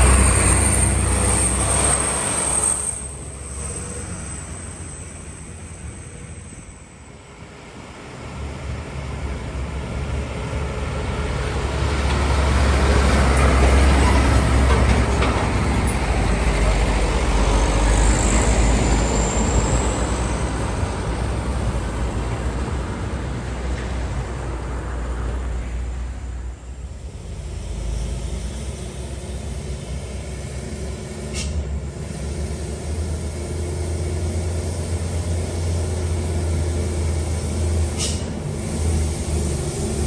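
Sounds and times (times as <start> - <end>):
diesel truck engine rumble: 0.0 - 40.0
brief high squeal: 0.3 - 6.9, 31.3 - 31.6.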